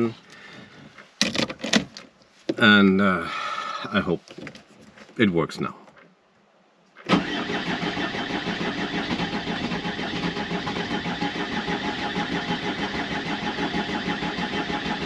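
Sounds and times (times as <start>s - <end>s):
diesel engine idling: 7.1s - 15.0s.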